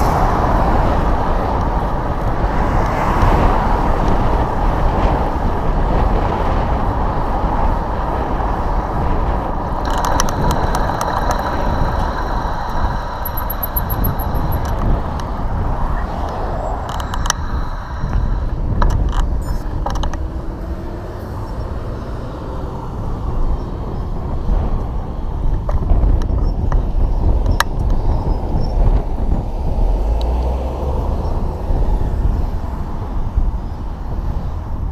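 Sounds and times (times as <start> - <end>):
road traffic noise: 0.0 - 34.9
wind on microphone: 0.0 - 34.9
clicks: 9.8 - 15.3, 16.2 - 20.2.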